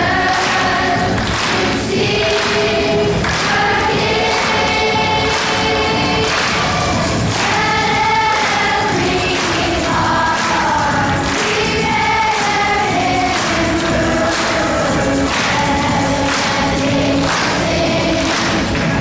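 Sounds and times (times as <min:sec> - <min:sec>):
children's choir singing: 0:00.0 - 0:19.0
musical accompaniment: 0:00.0 - 0:19.0.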